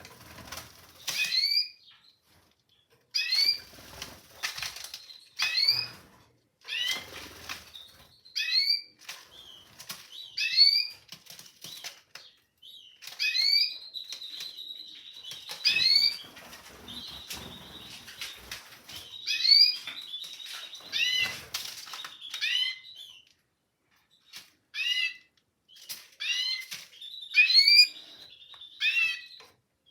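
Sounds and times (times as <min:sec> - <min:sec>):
wings flapping: 0:00.0 - 0:01.4, 0:03.4 - 0:06.1, 0:15.4 - 0:19.2
canaries chirping: 0:00.0 - 0:29.9.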